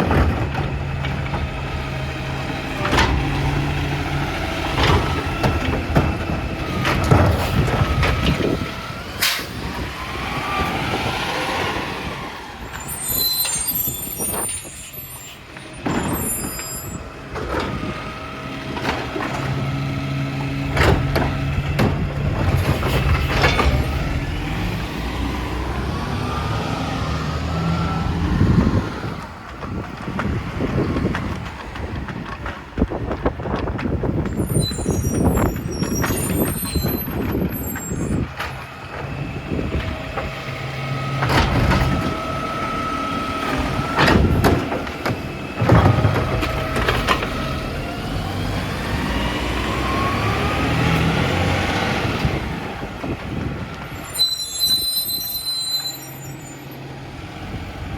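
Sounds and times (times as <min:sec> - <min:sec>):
diesel engine revving: 0:00.0 - 0:32.1, 0:33.9 - 0:57.9
hydraulic whine: 0:09.2 - 0:19.6
clatters and knocks: 0:20.7 - 0:24.2, 0:29.2 - 0:34.4, 0:43.4 - 0:47.6.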